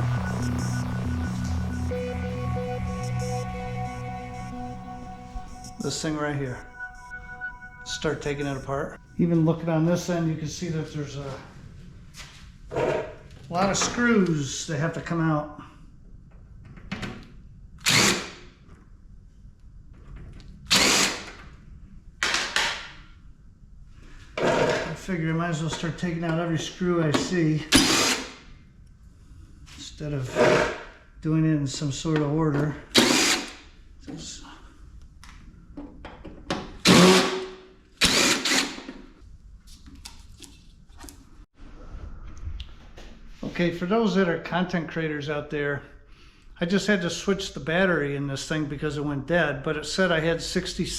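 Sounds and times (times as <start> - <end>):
cordless drill bursts: 20.7 - 21.2, 27.8 - 28.3, 33.0 - 33.6, 36.9 - 37.4, 38.0 - 38.8.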